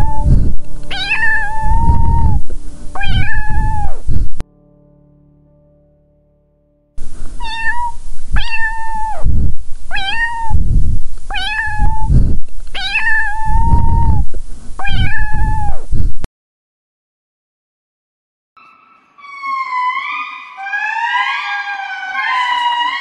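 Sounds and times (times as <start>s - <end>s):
cat meowing: 0.0s - 4.0s, 7.4s - 9.3s, 9.9s - 10.6s, 11.3s - 12.1s, 12.7s - 15.8s, 18.6s - 23.0s.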